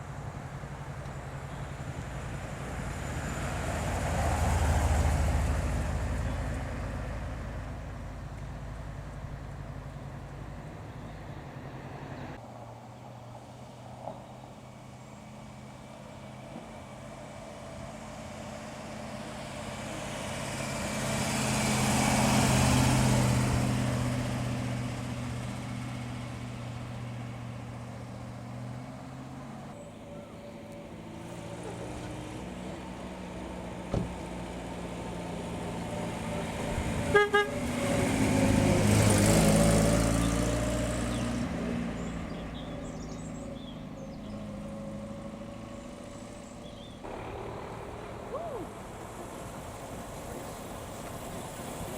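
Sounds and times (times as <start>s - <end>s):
cars driving past: 0.0s - 51.9s
car horn toots: 37.1s - 37.6s.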